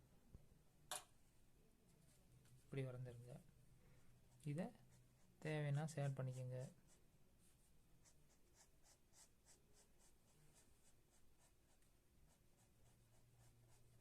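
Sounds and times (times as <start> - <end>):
pencil scratching on paper: 4.3 - 14.0.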